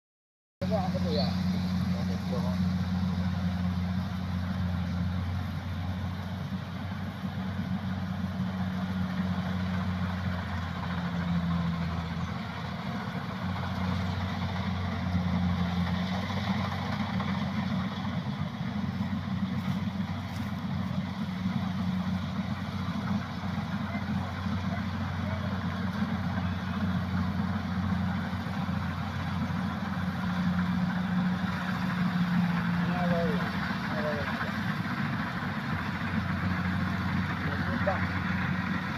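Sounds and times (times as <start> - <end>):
combine harvester engine drone: 0.6 - 38.9.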